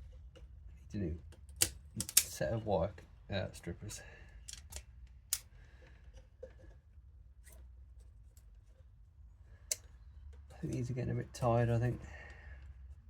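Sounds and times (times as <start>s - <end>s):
wire strippers clicking shut: 1.4s - 2.4s, 4.5s - 5.5s.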